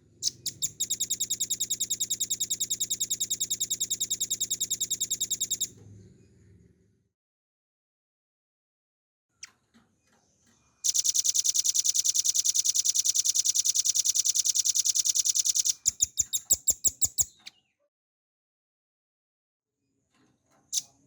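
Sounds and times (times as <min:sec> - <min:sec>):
bird singing trill: 0:00.2 - 0:05.7, 0:10.8 - 0:17.7.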